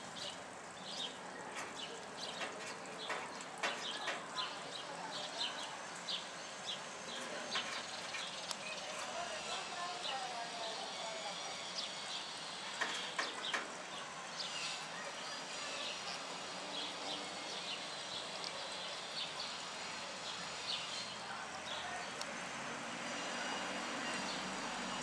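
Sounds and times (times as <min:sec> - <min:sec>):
small birds chirping: 0:00.0 - 0:22.3.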